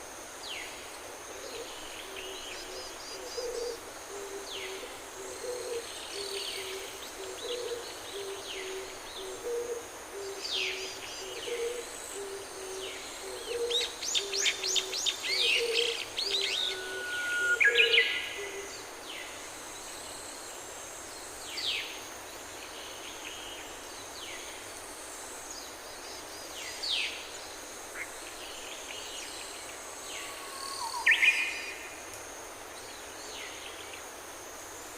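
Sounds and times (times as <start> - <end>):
low two-note cooing call: 16.4 - 18.6.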